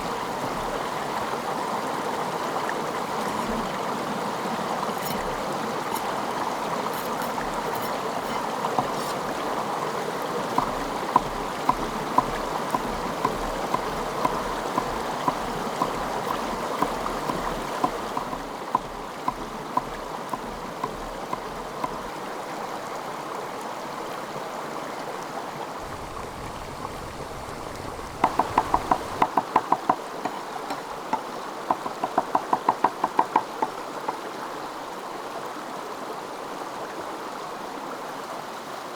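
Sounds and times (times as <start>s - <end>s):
running water hiss: 0.0s - 38.0s.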